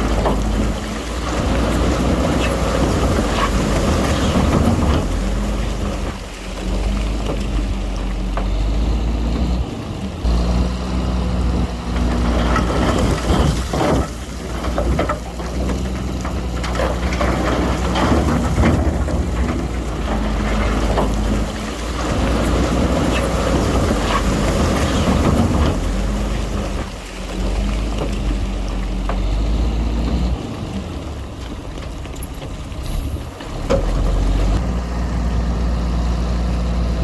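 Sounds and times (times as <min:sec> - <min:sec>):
diesel earthmoving machinery rumbling: 0:00.0 - 0:37.0.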